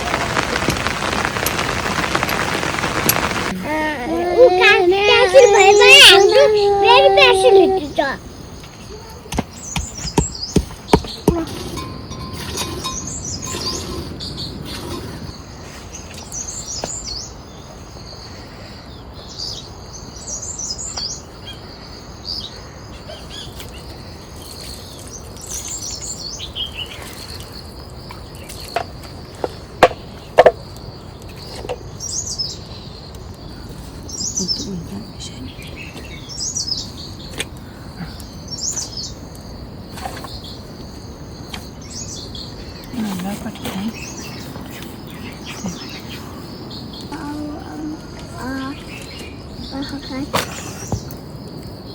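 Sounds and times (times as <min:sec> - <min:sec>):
birds chirping: 0:00.0 - 0:51.9.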